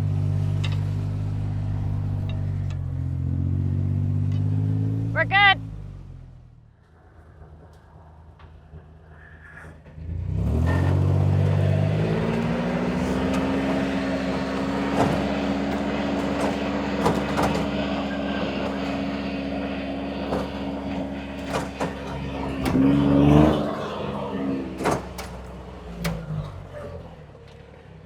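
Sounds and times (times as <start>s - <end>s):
scattered knocks: 11.2s - 23.8s, 24.6s - 26.4s.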